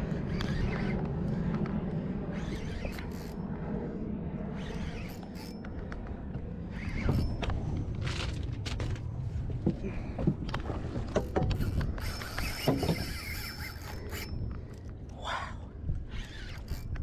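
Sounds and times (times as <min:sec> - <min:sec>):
low steady rumble: 0:00.0 - 0:17.0
fishing reel clicks and creaks: 0:00.3 - 0:01.0, 0:02.3 - 0:03.4, 0:04.5 - 0:05.7, 0:06.7 - 0:07.6, 0:11.2 - 0:15.4, 0:16.0 - 0:17.0.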